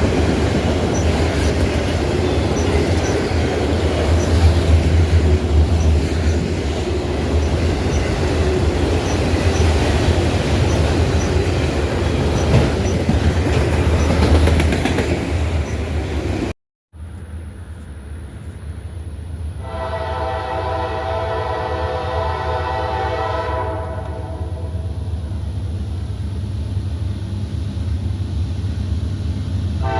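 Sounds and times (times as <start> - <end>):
freight train rumbling past: 0.0 - 29.9
train air horn chord: 19.6 - 24.9.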